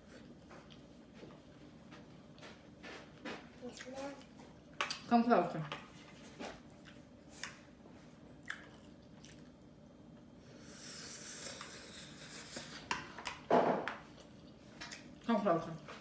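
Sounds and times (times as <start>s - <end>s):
chewing noodles: 8.4s - 9.7s.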